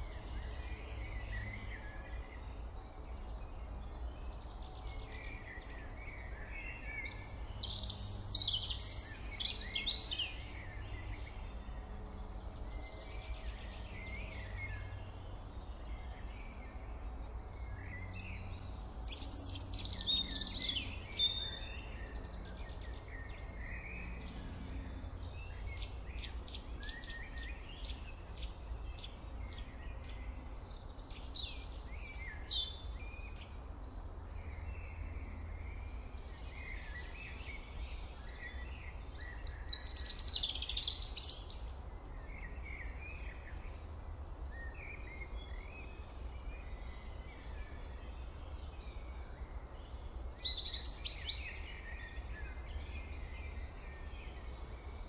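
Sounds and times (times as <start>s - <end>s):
birds chirping: 1.1s - 11.8s, 12.6s - 33.6s.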